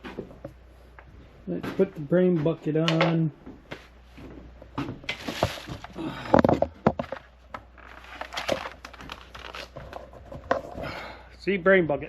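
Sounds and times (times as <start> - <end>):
plastic helmet rustling and crinkling: 3.8 - 11.1.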